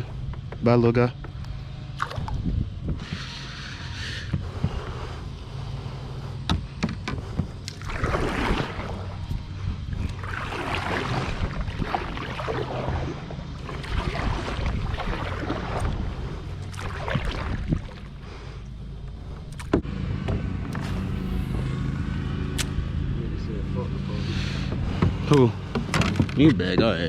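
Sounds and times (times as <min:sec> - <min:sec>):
low rumble on microphone: 0:00.0 - 0:27.0
paddle splashing through water: 0:02.0 - 0:02.4, 0:07.4 - 0:18.4
sharp knock on hull: 0:24.7 - 0:27.0.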